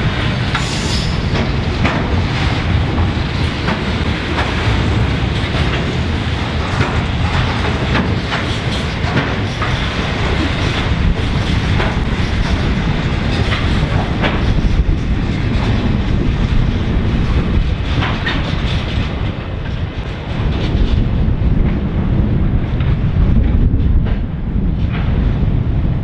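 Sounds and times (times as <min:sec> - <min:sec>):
freight train wheels rumbling on rail: 0:00.0 - 0:26.0.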